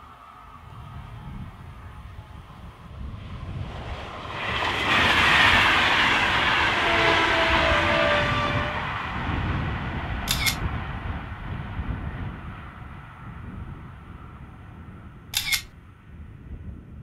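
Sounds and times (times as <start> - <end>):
train rushing past: 0.0 - 14.4
sharp double click: 10.3 - 10.6, 15.4 - 15.7.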